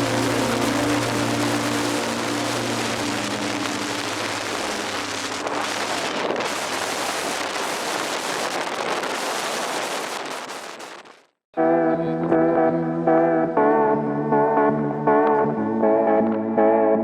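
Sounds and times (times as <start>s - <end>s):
strong wind rushing: 0.0s - 10.5s.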